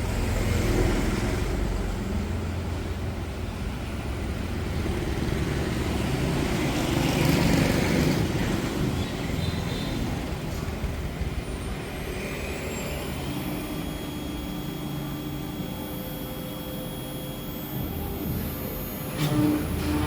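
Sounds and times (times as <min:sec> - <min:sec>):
high-pitched whine: 0:08.5 - 0:20.0
cnc router running: 0:09.5 - 0:20.0
low hum: 0:11.8 - 0:20.0.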